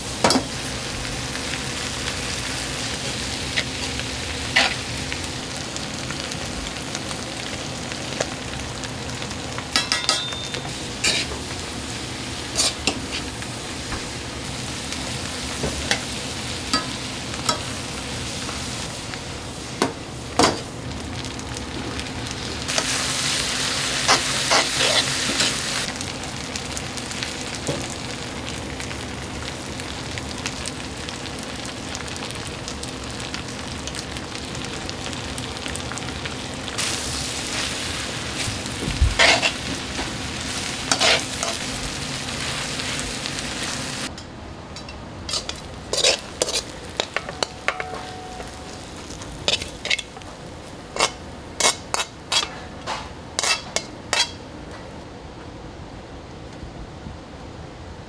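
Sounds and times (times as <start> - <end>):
food sizzling in a pan: 0.0 - 44.1, 44.8 - 54.5
metal utensil tapping a pan: 9.8 - 10.7, 44.2 - 48.6.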